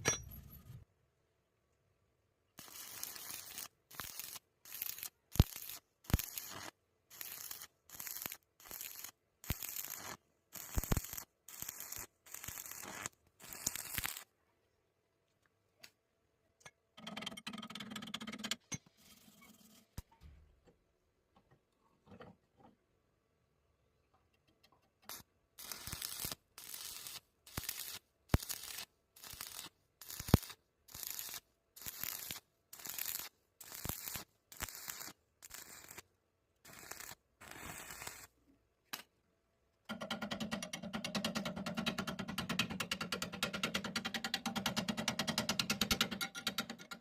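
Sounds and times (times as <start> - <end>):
welding arc crackling: 2.6 - 14.2, 25.1 - 36.0, 36.7 - 38.3.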